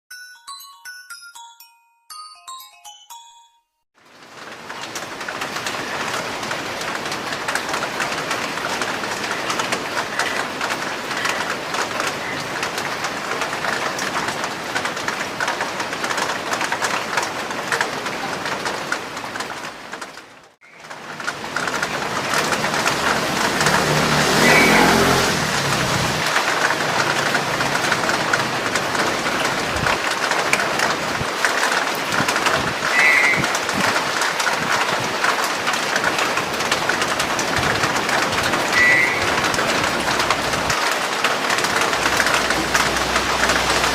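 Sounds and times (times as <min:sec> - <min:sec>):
rushing traffic noise: 0:20.6 - 0:43.9
low engine rumble passing: 0:21.0 - 0:29.7, 0:41.6 - 0:43.9
starling calls: 0:24.4 - 0:25.0, 0:32.8 - 0:33.6, 0:38.6 - 0:39.8.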